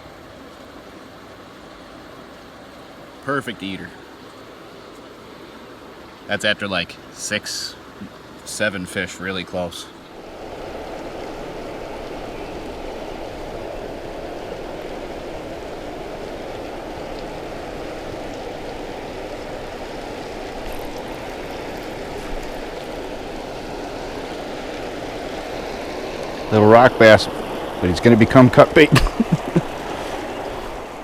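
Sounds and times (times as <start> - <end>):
water pouring over a spillway: 10.2 - 31.0.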